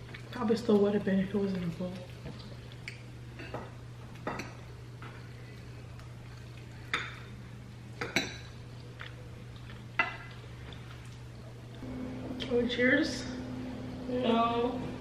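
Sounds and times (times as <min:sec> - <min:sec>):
steady low hum: 0:01.0 - 0:15.0
cutlery clinking on dishes: 0:08.0 - 0:08.6.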